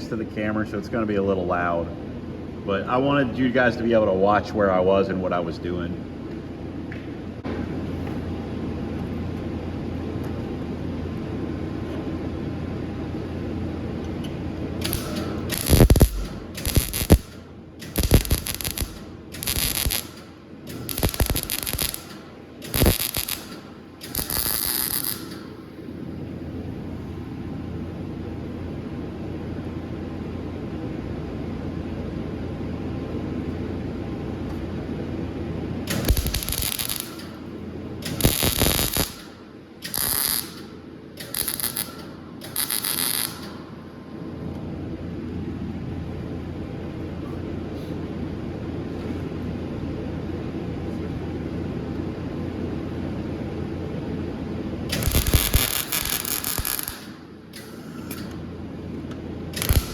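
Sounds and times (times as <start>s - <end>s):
welding machine hum: 7.7s - 29.4s, 35.8s - 43.8s, 54.8s - 59.9s
welding arc crackling: 14.8s - 25.6s, 35.9s - 43.6s, 54.9s - 57.3s, 59.6s - 59.9s.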